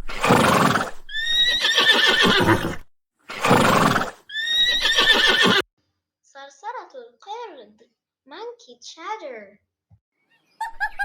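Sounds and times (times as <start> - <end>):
horse neighing: 0.0 - 5.6.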